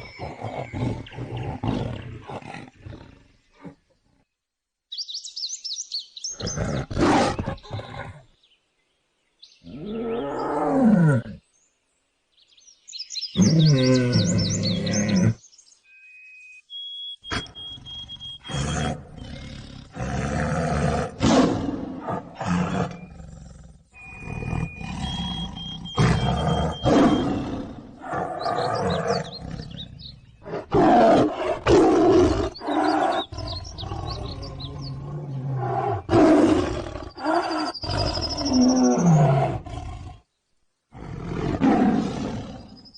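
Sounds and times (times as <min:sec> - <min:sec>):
tiger roaring: 0:06.4 - 0:08.2, 0:17.3 - 0:40.3, 0:40.9 - 0:42.8.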